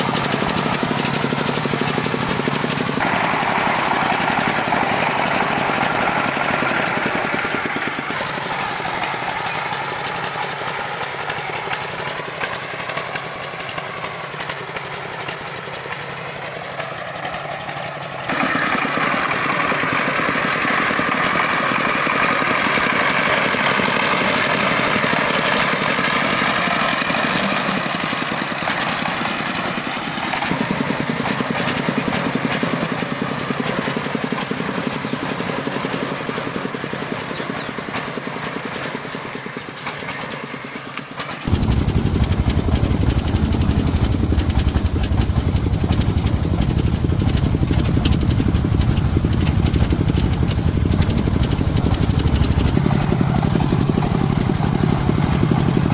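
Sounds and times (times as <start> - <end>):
engine running: 0.0 - 55.9
deep rough engine note: 41.5 - 55.9.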